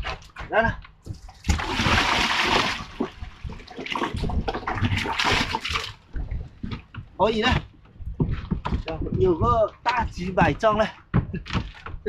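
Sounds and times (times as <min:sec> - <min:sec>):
water pouring and splashing: 0:01.1 - 0:06.8.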